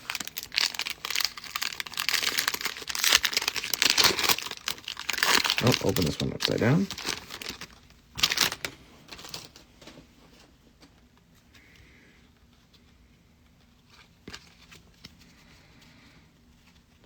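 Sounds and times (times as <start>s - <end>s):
foil wrapper crinkling: 0.0s - 9.9s
cards rustling and ticking: 0.0s - 10.0s.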